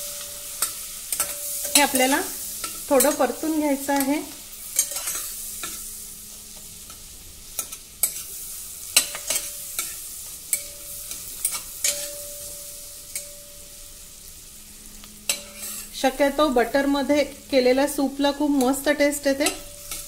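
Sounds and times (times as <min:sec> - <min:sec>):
metal spatula scraping a pot: 0:00.0 - 0:03.3, 0:04.7 - 0:05.9, 0:06.9 - 0:13.4, 0:15.3 - 0:16.0, 0:19.4 - 0:20.0
onion sizzling in butter: 0:00.0 - 0:20.0.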